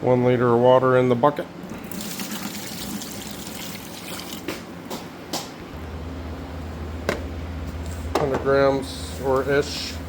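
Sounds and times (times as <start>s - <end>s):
water pouring into a bucket: 1.8s - 4.5s.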